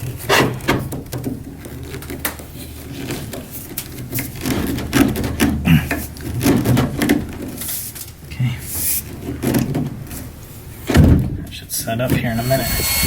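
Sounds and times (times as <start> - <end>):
hands handling parts: 0.0 - 11.0
steady low hum: 7.3 - 13.0.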